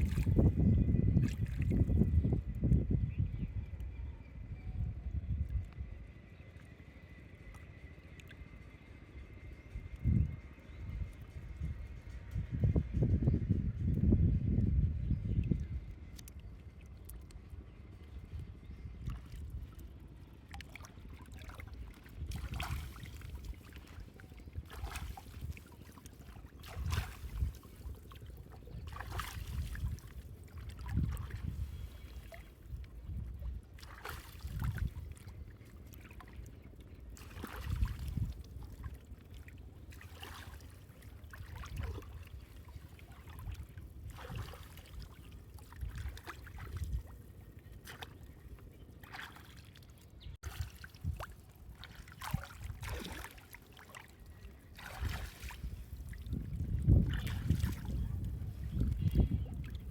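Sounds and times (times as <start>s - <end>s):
water splashing and sloshing: 0.0s - 2.8s, 5.4s - 13.0s, 15.3s - 59.9s
low rumble: 0.0s - 21.3s.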